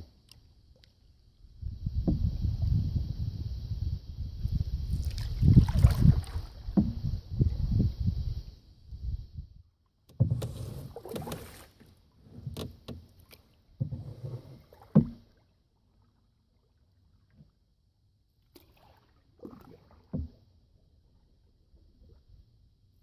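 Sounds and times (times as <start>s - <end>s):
paddle splashing water: 4.9s - 7.6s, 9.7s - 17.7s, 18.4s - 22.4s.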